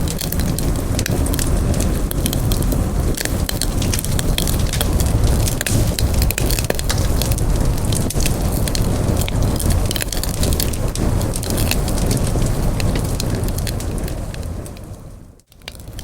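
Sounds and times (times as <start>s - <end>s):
campfire crackling and popping: 0.0s - 16.0s
low rumble of flames: 0.0s - 16.0s.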